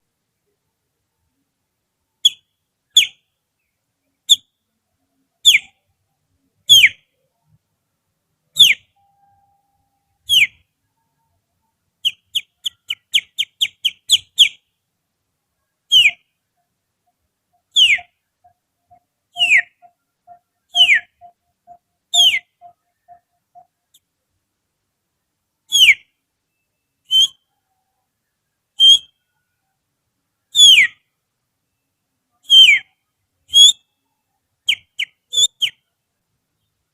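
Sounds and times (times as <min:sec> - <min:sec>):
short whistled chirps: 0:02.2 - 0:03.2, 0:05.4 - 0:05.8, 0:06.7 - 0:07.0, 0:08.6 - 0:11.4, 0:12.0 - 0:14.6, 0:15.9 - 0:16.3, 0:17.6 - 0:23.9, 0:25.7 - 0:28.0, 0:28.8 - 0:29.6, 0:30.6 - 0:31.0, 0:32.4 - 0:34.0, 0:34.7 - 0:35.9
finger whistling bird song: 0:05.4 - 0:05.8, 0:06.7 - 0:07.0, 0:08.6 - 0:09.5, 0:10.3 - 0:10.6, 0:15.9 - 0:16.2, 0:17.7 - 0:23.8, 0:27.1 - 0:27.7, 0:28.8 - 0:29.2, 0:30.6 - 0:31.0, 0:32.4 - 0:32.9, 0:33.5 - 0:33.8, 0:34.7 - 0:35.8.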